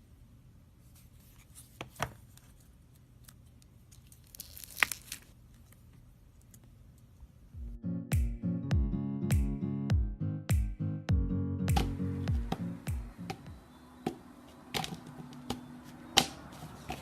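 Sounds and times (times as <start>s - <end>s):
slime sticky crackling: 3.9s - 5.3s
music: 7.6s - 13.7s.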